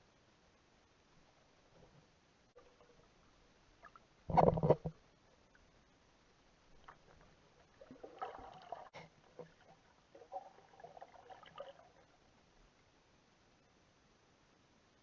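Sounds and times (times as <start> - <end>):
muffled water sloshing: 6.7 - 12.5.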